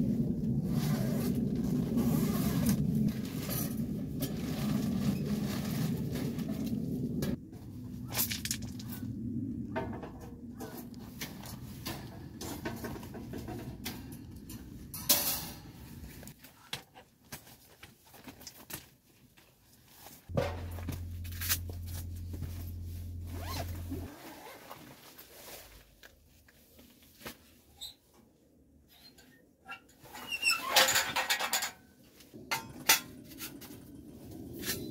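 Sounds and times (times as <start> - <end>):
zipper being pulled: 0.6 - 3.5, 23.2 - 24.9
steady low hum: 20.3 - 24.1.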